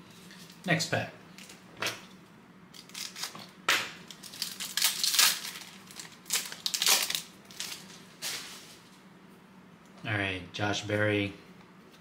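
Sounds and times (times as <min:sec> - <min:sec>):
wrapper tearing and crinkling: 0:02.8 - 0:08.5.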